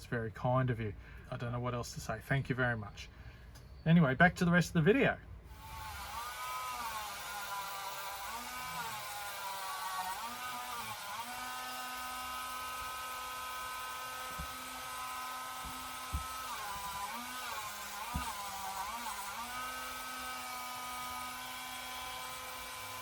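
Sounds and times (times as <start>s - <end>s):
small electric power tool running: 5.5s - 23.0s.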